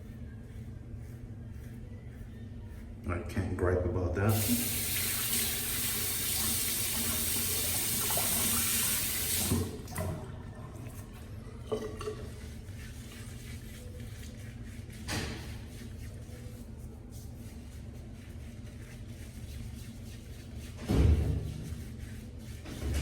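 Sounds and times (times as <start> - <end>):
tap running into a basin: 4.3 - 11.0, 11.6 - 12.6.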